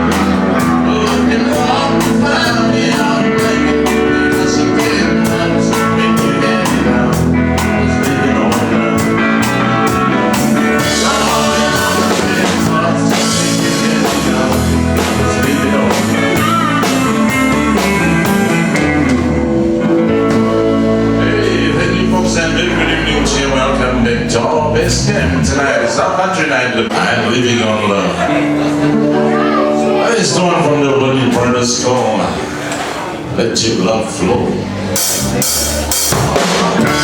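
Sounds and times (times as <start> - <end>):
drums keeping steady beat: 0.0 - 25.5, 34.8 - 37.0
country band playing: 0.0 - 37.0.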